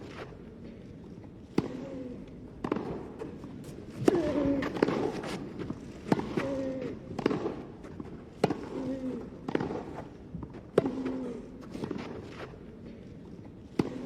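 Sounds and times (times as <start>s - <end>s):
racket hitting tennis ball: 1.5s - 12.6s, 13.7s - 14.0s.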